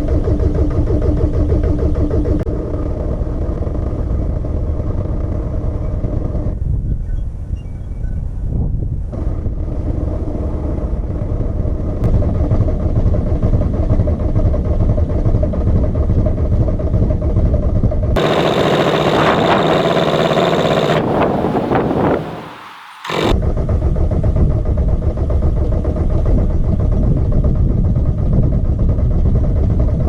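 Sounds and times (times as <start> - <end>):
diesel engine running: 18.2 - 23.3.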